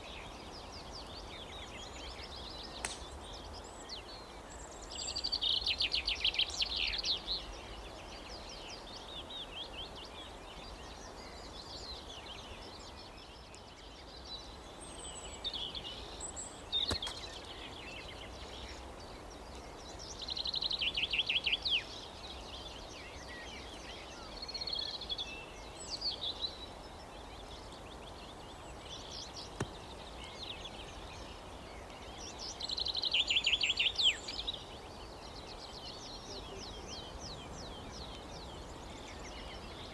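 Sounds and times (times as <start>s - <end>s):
songbirds singing: 0.0s - 39.9s
sharp click: 2.8s - 3.1s, 16.9s - 17.4s.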